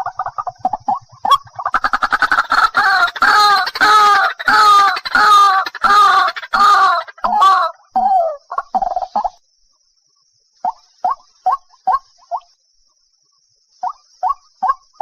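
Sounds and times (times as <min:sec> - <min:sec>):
waterhen harsh repeated calls: 0:00.0 - 0:08.8.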